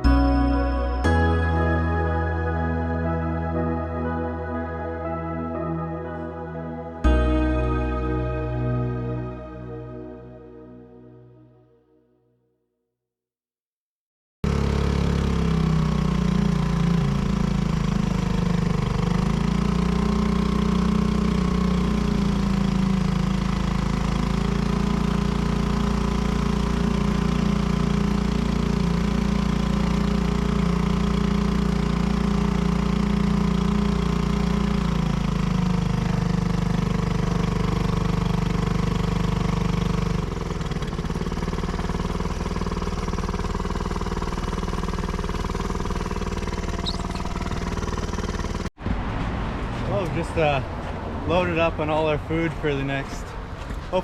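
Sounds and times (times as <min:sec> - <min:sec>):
boat engine running: 0:00.0 - 0:10.8, 0:14.4 - 0:48.8.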